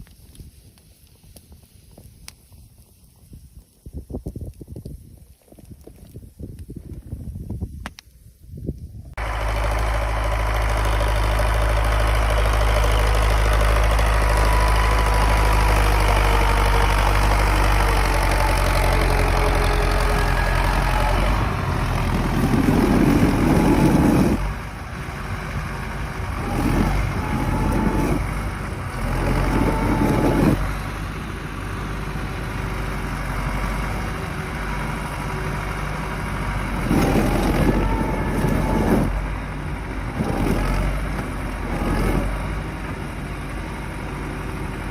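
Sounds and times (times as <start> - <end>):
tractor diesel engine revving: 9.2 - 44.9.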